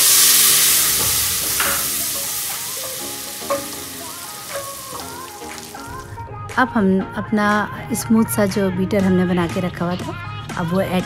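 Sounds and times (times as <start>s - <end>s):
masala sizzling in hot oil: 0.0s - 6.1s
faint background music: 0.2s - 11.0s
wooden spoon knocking on metal pot: 1.0s - 5.8s.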